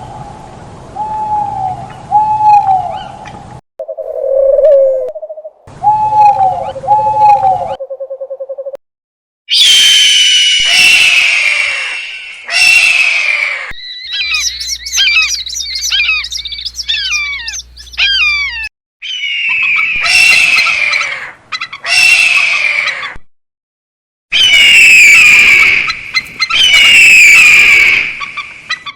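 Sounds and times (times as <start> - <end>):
harsh bird calls: 9.5 - 23.2, 24.3 - 28.9
whistled bird chirps: 13.8 - 18.7.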